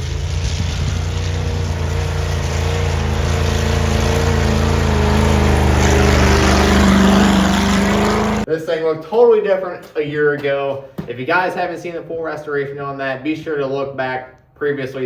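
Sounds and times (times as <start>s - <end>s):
car engine running: 0.0s - 8.5s.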